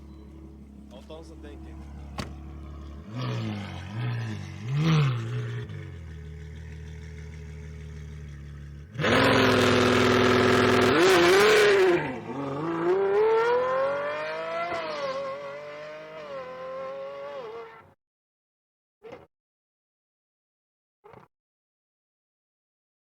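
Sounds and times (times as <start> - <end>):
loud exhaust blast accelerating: 0.0 - 14.6
car engine revving: 0.0 - 17.8.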